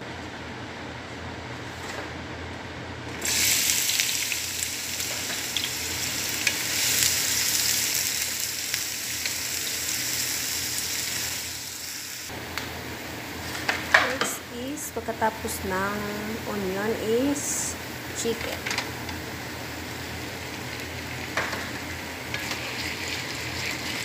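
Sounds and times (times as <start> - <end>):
onion sizzling in hot oil: 3.2 - 14.0, 17.0 - 24.0
steady low hum: 12.3 - 22.5.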